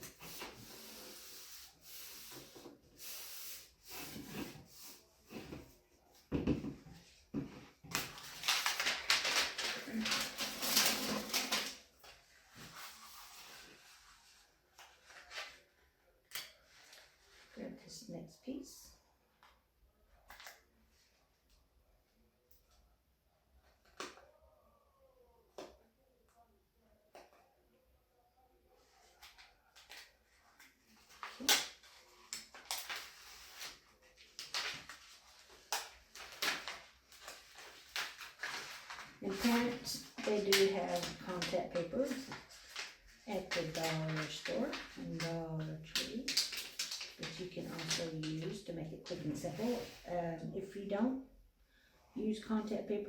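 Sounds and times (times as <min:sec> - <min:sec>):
vinyl paper rustling and crinkling: 0:04.2 - 0:17.6, 0:28.8 - 0:50.1.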